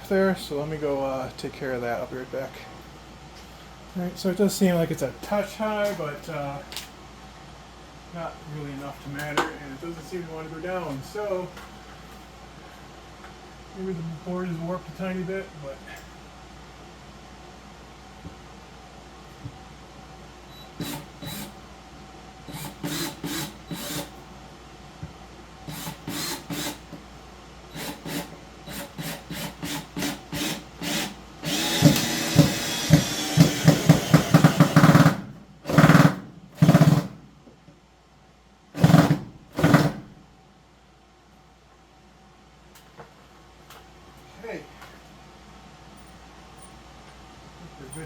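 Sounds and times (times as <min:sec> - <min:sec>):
power drill running: 0:20.6 - 0:21.5, 0:22.5 - 0:24.2, 0:25.7 - 0:26.8, 0:27.7 - 0:37.1.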